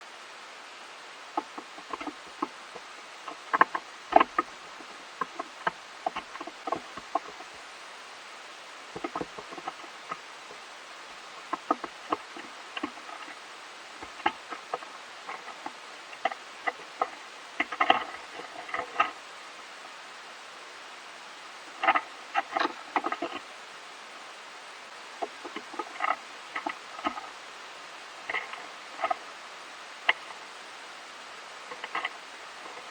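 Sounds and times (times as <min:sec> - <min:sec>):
steady hiss: 0:00.0 - 0:32.9
squirrel gnawing: 0:00.6 - 0:32.9.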